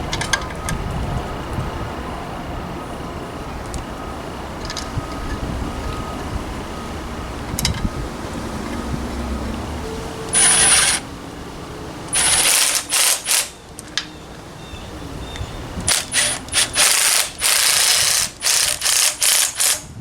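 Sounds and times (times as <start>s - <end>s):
thin high whine: 0.0s - 20.0s
pneumatic wrench bursts: 10.3s - 11.0s, 12.1s - 13.6s, 15.9s - 20.0s.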